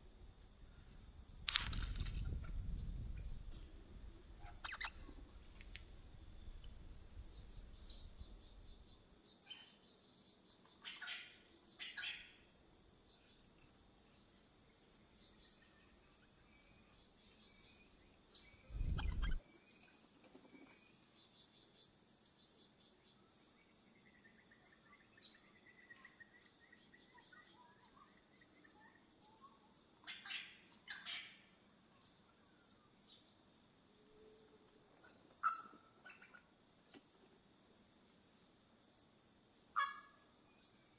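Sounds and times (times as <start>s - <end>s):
lower bird calls: 0.0s - 9.7s, 17.6s - 19.6s, 39.8s - 40.9s
high bird chirps: 1.3s - 8.6s, 18.6s - 19.4s.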